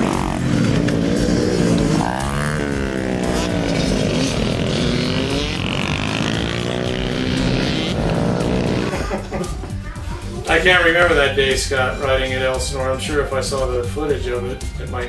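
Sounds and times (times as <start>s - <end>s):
dirt bike engine revving: 0.0s - 9.2s.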